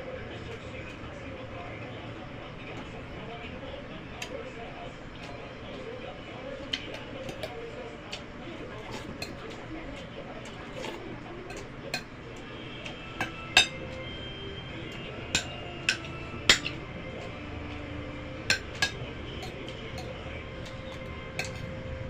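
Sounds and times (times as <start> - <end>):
cutlery clinking on plate: 6.7 - 8.2, 8.8 - 9.6, 10.4 - 12.2, 12.8 - 14.0, 15.4 - 16.8, 18.5 - 21.8.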